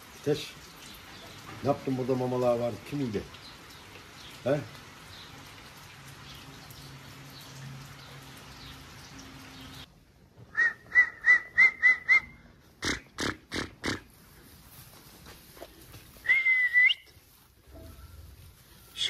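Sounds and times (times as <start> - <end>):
rain-like hiss: 0.0 - 19.0
short rising whistles: 10.5 - 12.4, 16.2 - 17.2.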